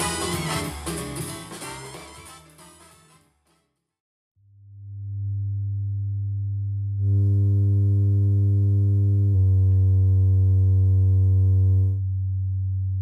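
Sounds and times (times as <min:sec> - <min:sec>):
low bass test tone: 0:04.4 - 0:13.0.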